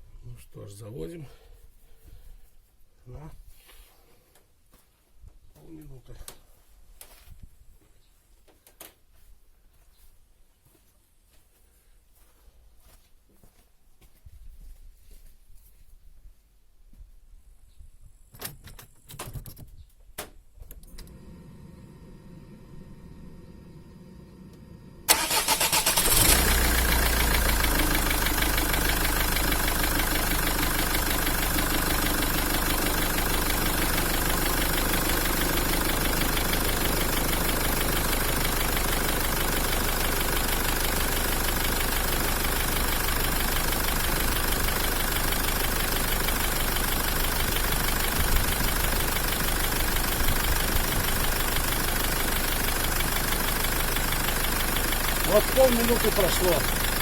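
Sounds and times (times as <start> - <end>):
diesel engine cranking: 20.8 - 57.0
diesel engine idling: 21.0 - 57.0.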